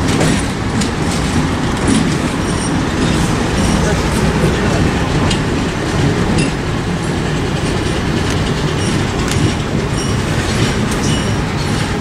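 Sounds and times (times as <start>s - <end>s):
passenger train rumbling on track: 0.0s - 12.0s.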